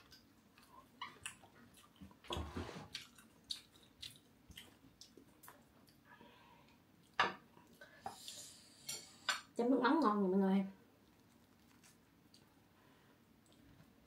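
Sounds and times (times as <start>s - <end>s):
close-up chewing and mouth sounds: 0.0s - 8.6s, 11.0s - 12.6s.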